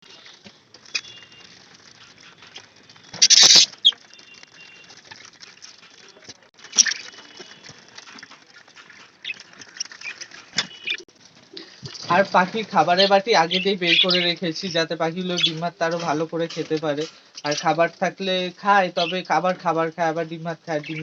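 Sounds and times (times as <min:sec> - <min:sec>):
birds pecking in cages: 0:00.0 - 0:19.8, 0:20.7 - 0:21.0
budgerigars chirping: 0:03.2 - 0:04.0, 0:12.9 - 0:14.4, 0:15.2 - 0:15.6.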